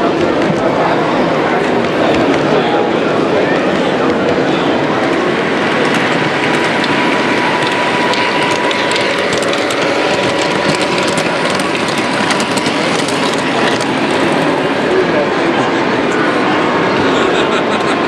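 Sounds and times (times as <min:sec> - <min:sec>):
model train whirring on track: 0:00.0 - 0:18.0
rapid small clicks: 0:04.9 - 0:14.9.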